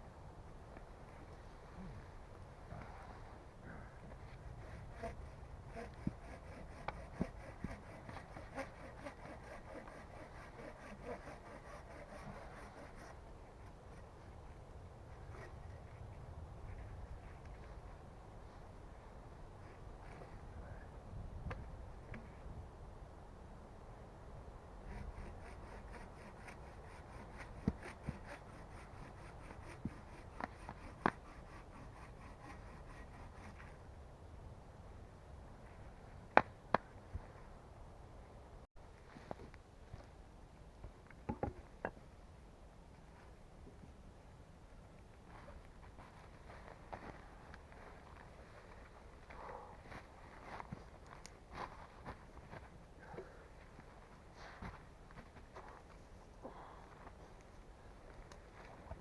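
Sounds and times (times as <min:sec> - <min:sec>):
hand saw cutting wood: 0:04.6 - 0:13.2, 0:24.9 - 0:33.8.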